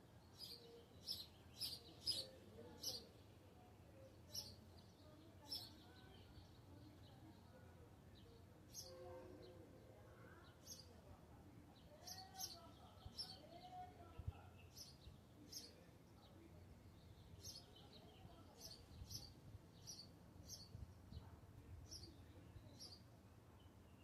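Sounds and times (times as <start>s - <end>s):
faint bird chirps: 0.2s - 3.1s.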